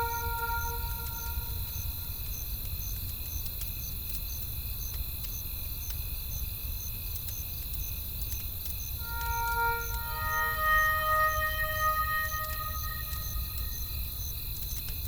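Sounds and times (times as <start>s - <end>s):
high insect trill: 0.0s - 2.9s, 8.7s - 15.0s
crickets chirping: 0.0s - 15.0s.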